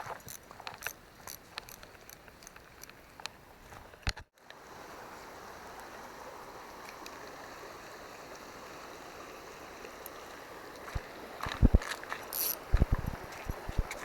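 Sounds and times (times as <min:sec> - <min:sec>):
river water flowing: 0:04.4 - 0:14.0.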